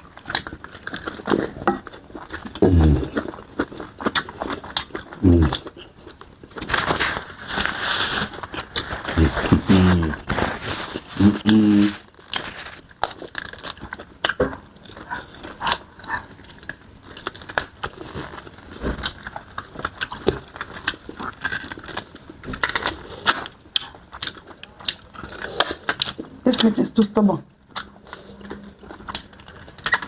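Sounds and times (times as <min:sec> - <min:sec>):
chewing chicken with crunches: 0:00.0 - 0:26.7, 0:27.6 - 0:30.0.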